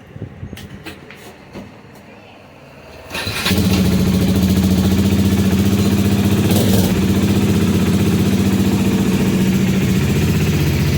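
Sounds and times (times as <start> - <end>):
motorcycle engine idling: 3.2 - 10.9.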